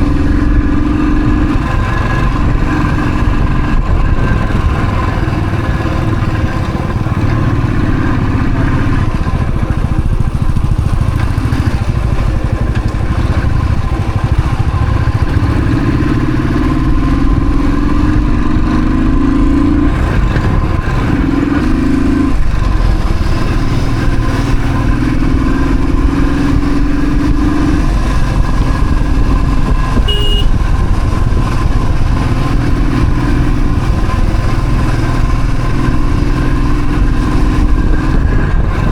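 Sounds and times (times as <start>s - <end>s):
motorcycle engine revving: 0.0s - 38.9s
high beep: 30.1s - 30.5s.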